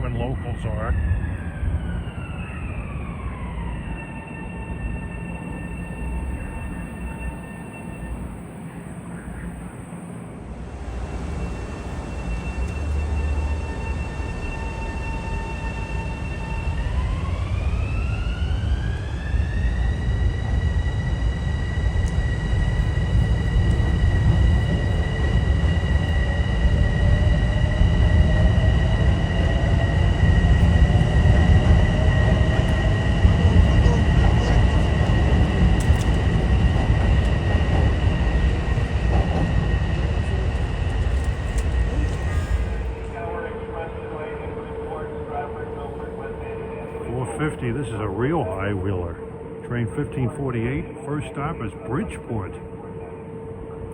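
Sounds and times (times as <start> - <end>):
wheels rumbling on rail: 0.0 - 47.2
electric train motor whine: 0.0 - 53.9.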